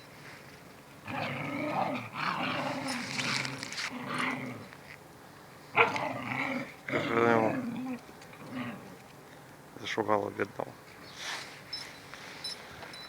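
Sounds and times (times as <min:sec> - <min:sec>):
dogs growling: 0:01.0 - 0:04.8, 0:05.8 - 0:09.0.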